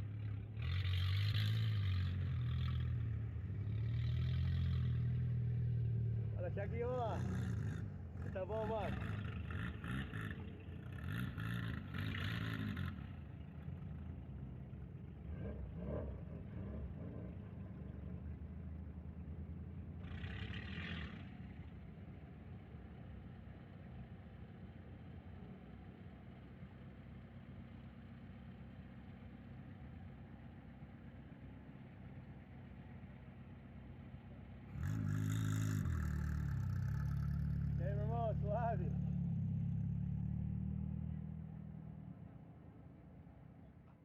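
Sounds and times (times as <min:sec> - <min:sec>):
car engine rumbling: 0:00.0 - 0:44.0
engine revving close by: 0:15.2 - 0:18.2, 0:20.0 - 0:21.5, 0:34.7 - 0:41.8.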